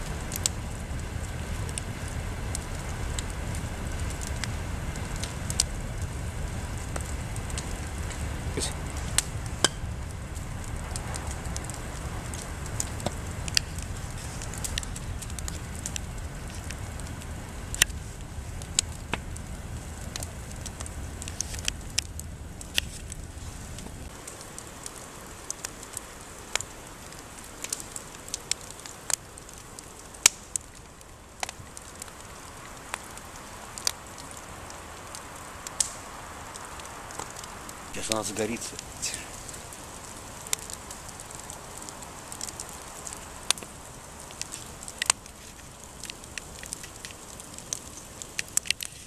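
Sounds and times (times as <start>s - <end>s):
low rumble: 0.0s - 24.2s
campfire crackling: 0.0s - 49.0s
sharp fire pops: 0.0s - 49.0s.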